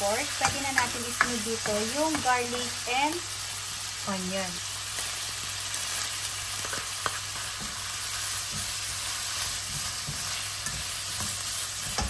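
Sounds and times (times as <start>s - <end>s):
food sizzling in hot oil: 0.0s - 12.0s
spatula scraping and knocking pan: 0.2s - 2.7s, 6.6s - 12.0s.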